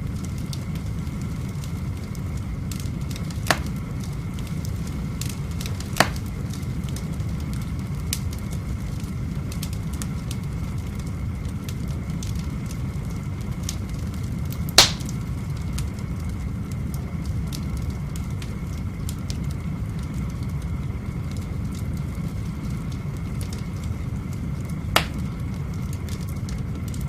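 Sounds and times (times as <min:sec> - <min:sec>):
fire low rumble: 0:00.0 - 0:27.0
wood fire crackling and popping: 0:00.0 - 0:27.0
loud sharp crack: 0:03.5 - 0:03.8, 0:06.0 - 0:06.3, 0:14.8 - 0:15.2, 0:25.0 - 0:25.3.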